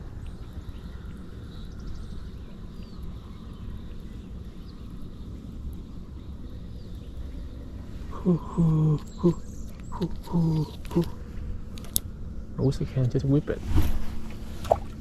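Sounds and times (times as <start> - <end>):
faint bird chirps: 0.0 - 11.2.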